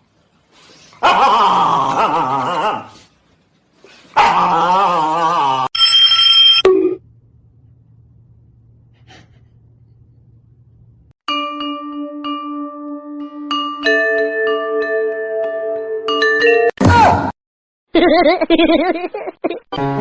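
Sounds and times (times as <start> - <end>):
faint low hum: 6.8 - 11.1.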